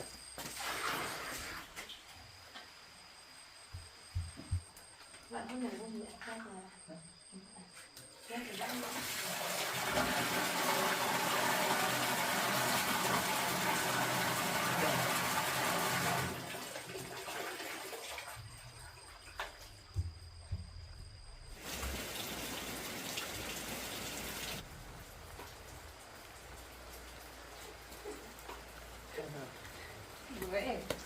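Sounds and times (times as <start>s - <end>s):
rushing water: 8.5s - 18.3s, 21.6s - 31.0s.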